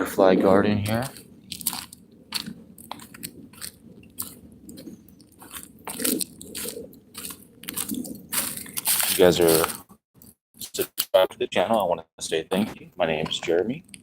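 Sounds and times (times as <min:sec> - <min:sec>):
footsteps crunching on dirt: 0:01.0 - 0:09.9.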